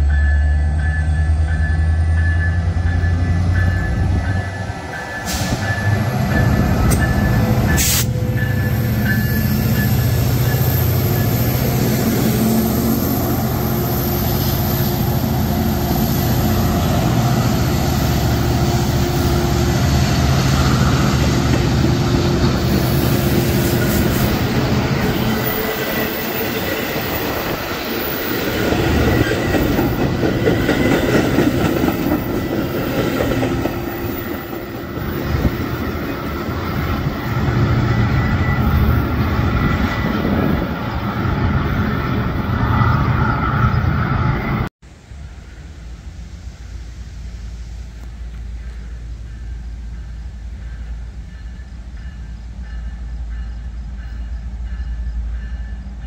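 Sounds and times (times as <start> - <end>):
train wheel squeal: 0.0 - 44.7, 48.5 - 56.0
diesel locomotive engine rumbling: 0.0 - 56.0
train wheel clatter: 20.9 - 37.1.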